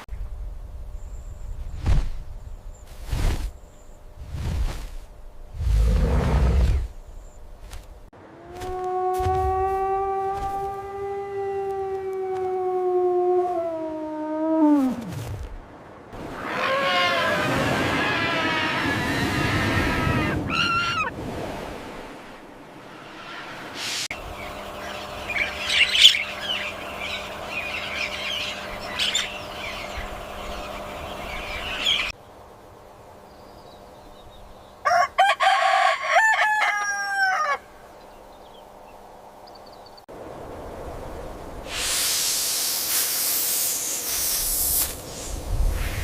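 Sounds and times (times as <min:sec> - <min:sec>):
rooster crowing: 0:34.8 - 0:37.8.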